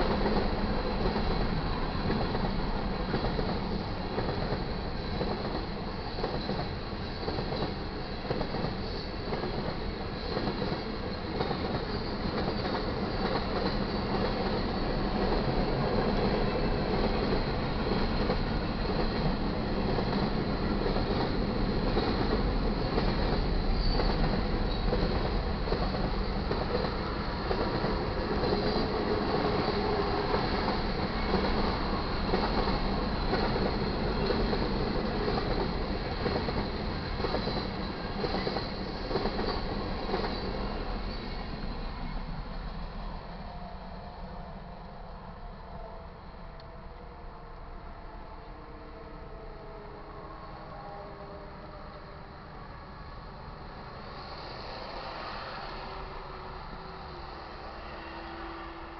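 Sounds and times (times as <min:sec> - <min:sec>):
steel wheels rumbling on rails: 0:00.0 - 0:44.3.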